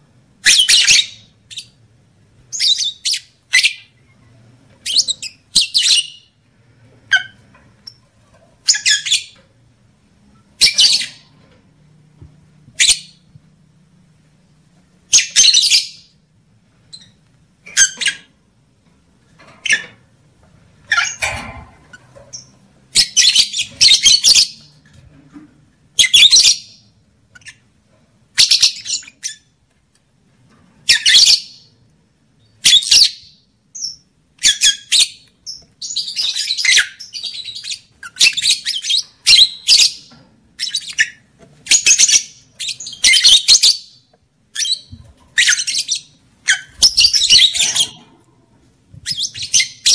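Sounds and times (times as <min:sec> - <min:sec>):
lovebirds chattering: 0:02.5 - 0:06.4, 0:07.0 - 0:09.5, 0:32.6 - 0:49.9.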